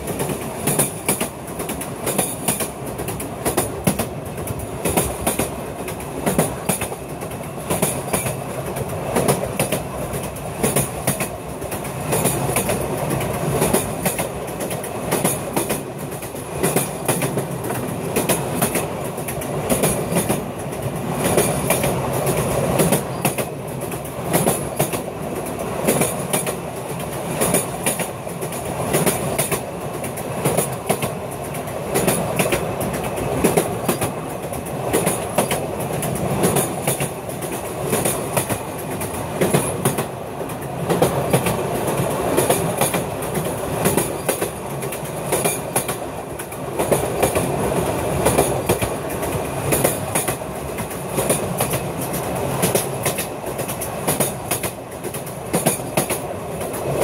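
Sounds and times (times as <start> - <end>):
train wheels rumbling: 0.0 - 57.0
sharp wheel clacks on track: 25.8 - 47.5, 48.2 - 56.9.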